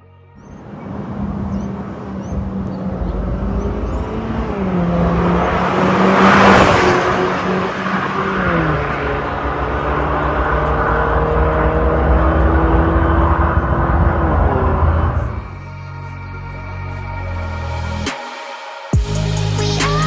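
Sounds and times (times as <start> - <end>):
car exhaust driving by: 0.4 - 15.6.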